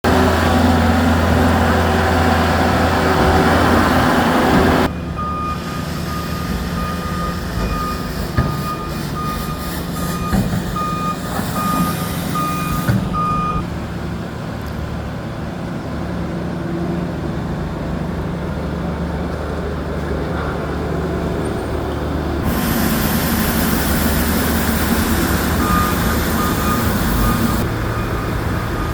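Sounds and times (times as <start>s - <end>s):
diesel engine running: 0.0s - 28.9s
reversing alarm beeping: 4.8s - 13.7s, 22.5s - 28.9s
loud hiss: 5.6s - 13.3s, 22.4s - 27.6s.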